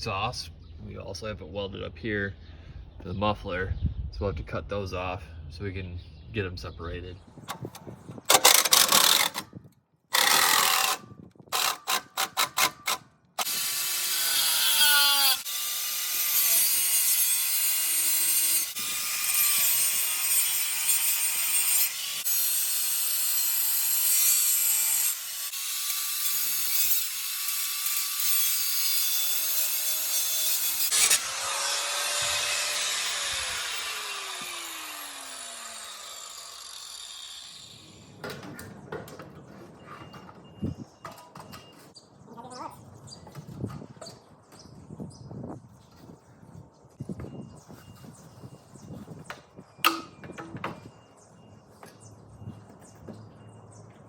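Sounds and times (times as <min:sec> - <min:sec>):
power tool cutting steel: 0:08.3 - 0:09.4, 0:10.1 - 0:38.1.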